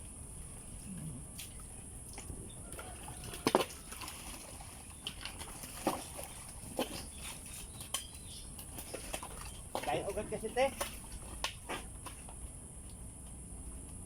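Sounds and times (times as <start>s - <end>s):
water splashing in a ditch: 1.3s - 12.4s.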